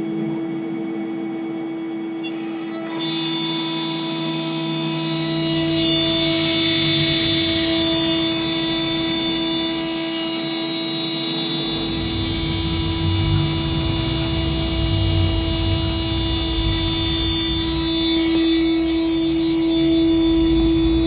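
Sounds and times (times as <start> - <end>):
router spindle whine: 0.0 - 21.0
low rumble: 11.7 - 21.0.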